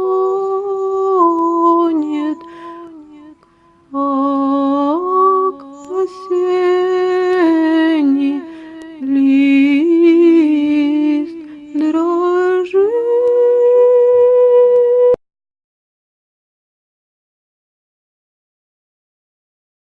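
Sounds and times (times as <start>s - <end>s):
woman singing wordless melody: 0.0s - 15.2s.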